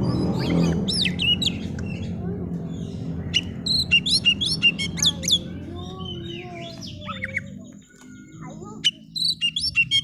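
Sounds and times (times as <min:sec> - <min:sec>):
low background hum: 0:00.0 - 0:10.0
bird singing whistled notes: 0:03.3 - 0:10.0.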